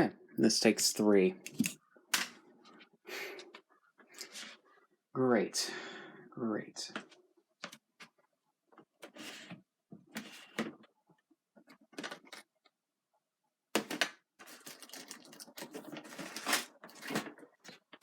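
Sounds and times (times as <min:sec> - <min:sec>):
plastic clicks: 0:01.5 - 0:02.3
batteries rattling: 0:13.8 - 0:17.8.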